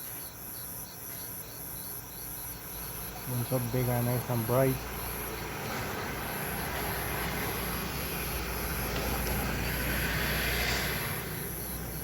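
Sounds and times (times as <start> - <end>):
crickets chirping: 0.0 - 12.0
passing vehicle engine rushing: 2.6 - 12.0.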